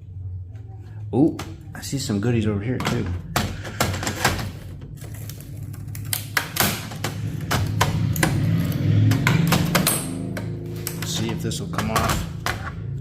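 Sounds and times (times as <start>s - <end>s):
steady low hum: 0.0s - 13.0s
metal parts clicking and knocking: 2.8s - 12.8s.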